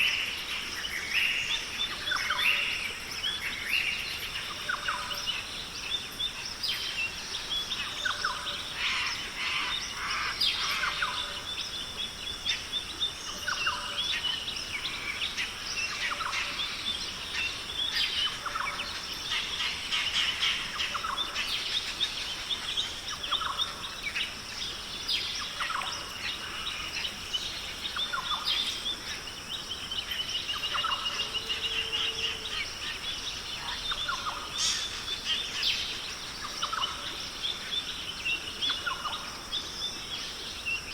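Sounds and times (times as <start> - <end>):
high-pitched background hiss: 0.0 - 40.9
birds chirping and whistling: 25.0 - 37.0.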